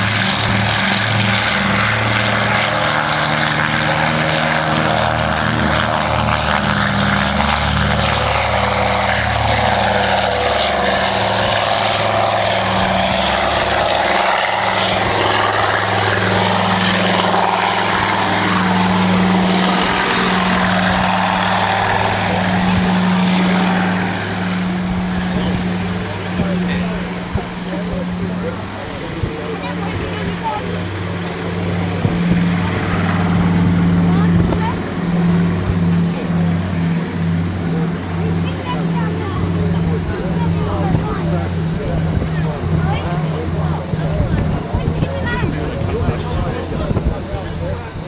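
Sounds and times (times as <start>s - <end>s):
aircraft propeller engines droning: 0.0s - 48.0s.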